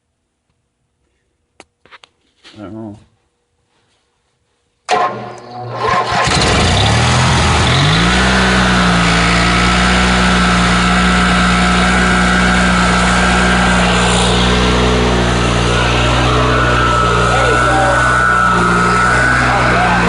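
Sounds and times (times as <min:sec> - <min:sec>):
generator engine starting and running: 0:04.9 - 0:20.0.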